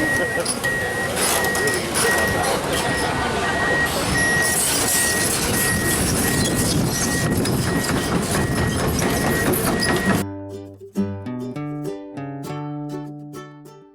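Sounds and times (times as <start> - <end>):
heavy machinery running: 0.0 - 10.2
reversing alarm beeping: 0.0 - 10.2
plucked string music: 9.2 - 13.9.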